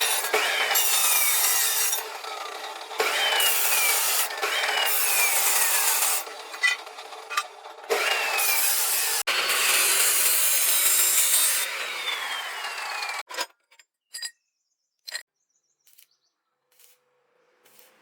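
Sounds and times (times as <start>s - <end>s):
power tool grinding: 0.0s - 13.4s.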